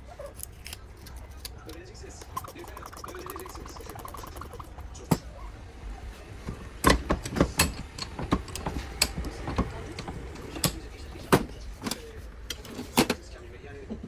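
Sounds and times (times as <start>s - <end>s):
clicks of hand tools handled: 6.4s - 13.2s.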